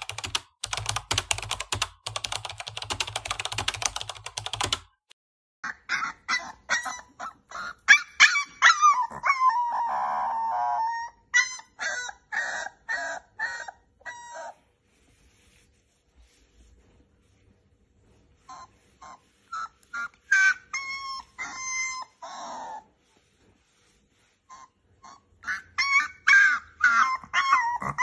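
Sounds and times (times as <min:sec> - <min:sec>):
puppy whining and yelping: 0:05.6 - 0:14.7, 0:18.4 - 0:28.0
puppy howling: 0:06.0 - 0:14.6, 0:20.3 - 0:22.9, 0:25.1 - 0:28.0.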